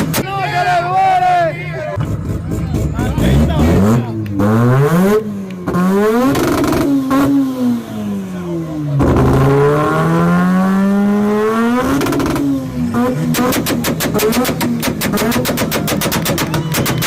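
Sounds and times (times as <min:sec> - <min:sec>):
car engine revving: 0:01.7 - 0:17.0.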